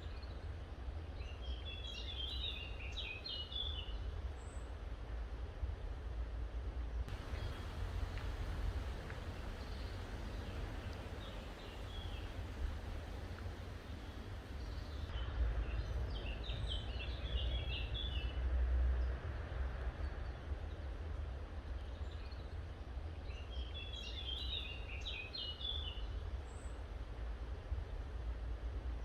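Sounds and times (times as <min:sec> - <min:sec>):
songbird chirping: 0:07.1 - 0:15.1
steady low rumble: 0:07.1 - 0:15.1.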